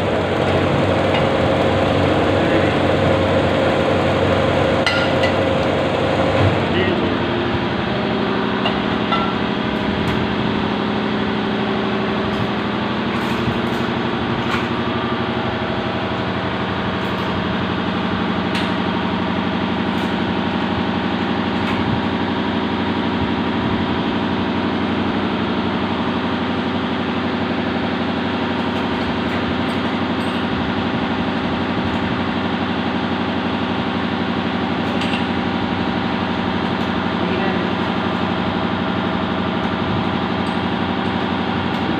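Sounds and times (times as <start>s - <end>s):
machine motor humming: 0.0s - 27.1s.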